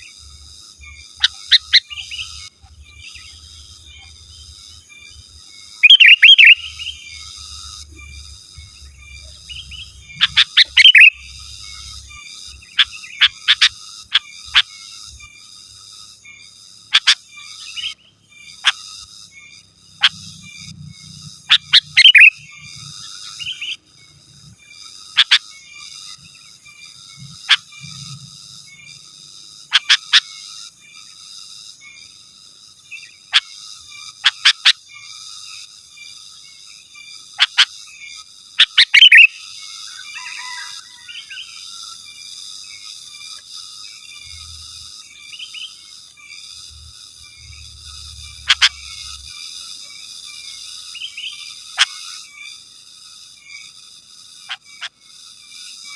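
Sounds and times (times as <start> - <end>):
bird sharp chirps: 1.2 - 4.2, 5.8 - 12.0, 16.9 - 18.8, 21.5 - 23.8, 38.6 - 41.6, 48.2 - 49.2.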